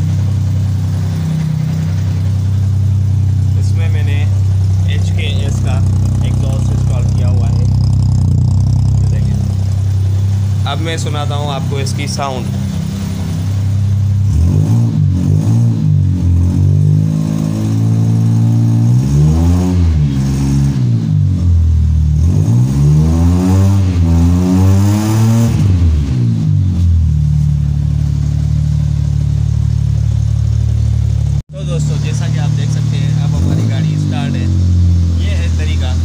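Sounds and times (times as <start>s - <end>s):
car engine revving and idling: 0.0s - 36.0s.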